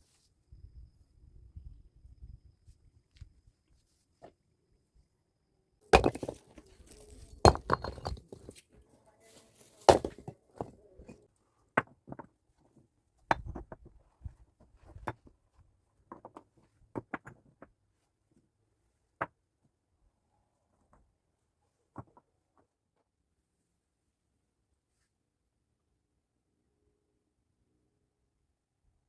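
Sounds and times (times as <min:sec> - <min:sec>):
hard objects knocking and clacking: 0:05.9 - 0:08.6, 0:09.8 - 0:11.2.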